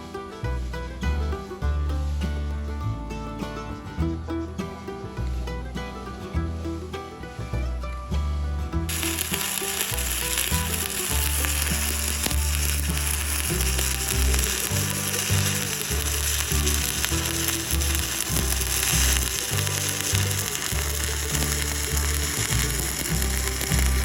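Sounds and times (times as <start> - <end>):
welding arc crackling: 8.9 - 24.0.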